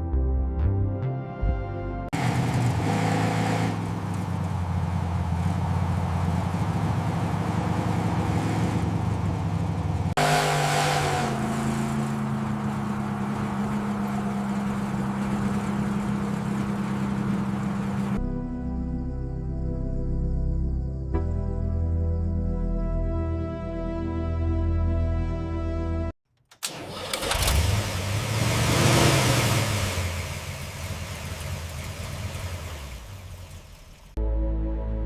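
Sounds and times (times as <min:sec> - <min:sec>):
car engine revving and idling: 0:02.1 - 0:18.2, 0:26.6 - 0:34.2.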